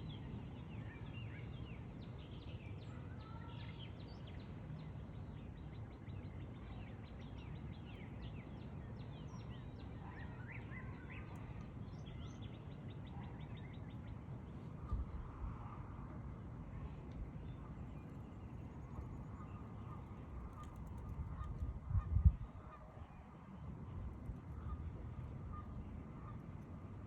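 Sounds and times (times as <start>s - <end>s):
low outdoor rumble: 8.3s - 27.0s.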